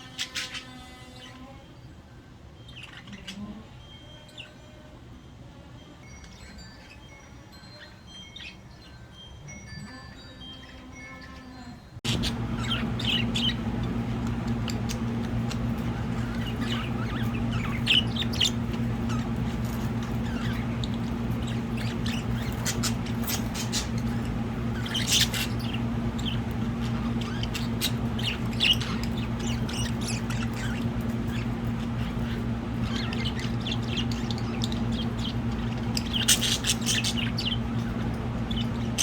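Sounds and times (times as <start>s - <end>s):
budgies chirping: 0.0s - 1.6s, 2.6s - 4.5s, 12.0s - 39.0s
soft chiming music: 2.6s - 12.0s
low hum: 12.0s - 39.0s.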